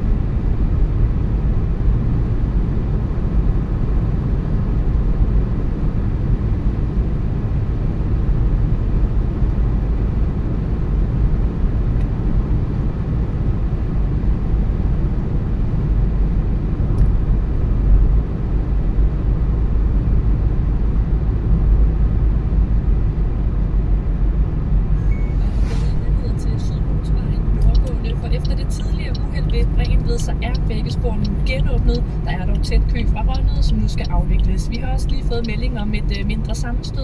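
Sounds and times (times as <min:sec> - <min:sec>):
car road and engine noise: 0:00.0 - 0:37.0.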